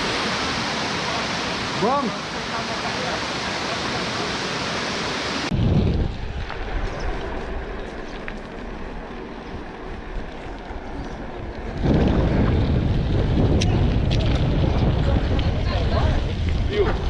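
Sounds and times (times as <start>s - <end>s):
wind buffeting microphone: 5.4s - 17.0s.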